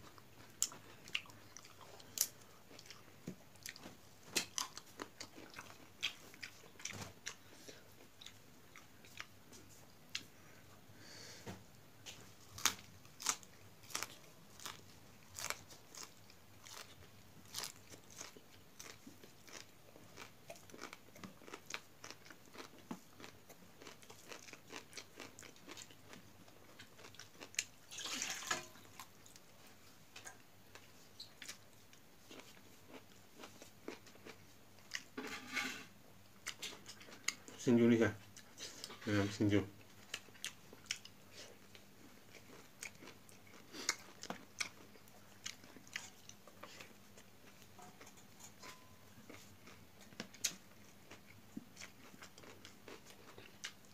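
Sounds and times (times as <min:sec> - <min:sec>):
crunchy chewing: 0:00.0 - 0:10.3, 0:12.1 - 0:27.9, 0:39.8 - 0:53.9.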